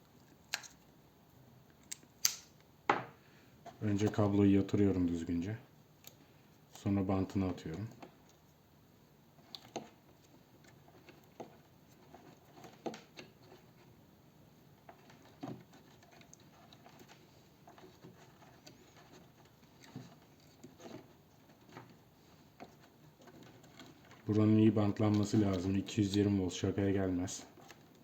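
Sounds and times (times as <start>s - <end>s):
electrical tape crinkling: 22.6s - 28.0s.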